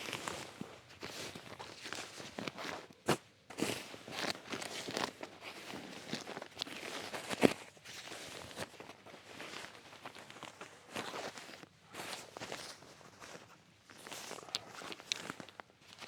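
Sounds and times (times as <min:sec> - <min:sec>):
nylon sleeping gear rustling: 0:03.6 - 0:16.0.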